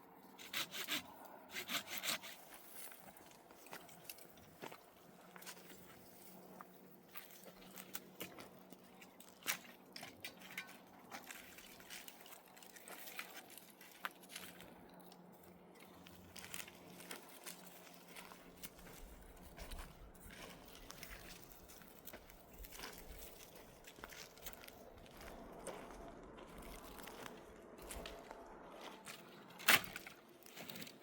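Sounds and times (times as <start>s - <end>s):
faint clicks and crunches: 7.1s - 19.6s.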